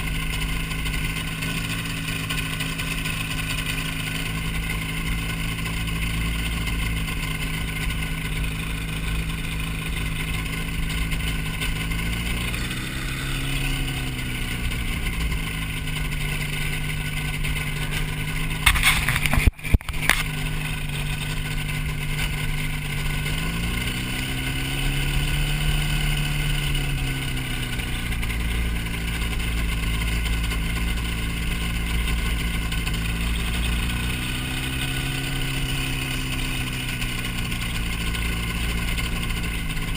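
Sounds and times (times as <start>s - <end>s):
ultralight aircraft engine running: 0.0s - 39.9s
loud crackle: 16.8s - 23.3s.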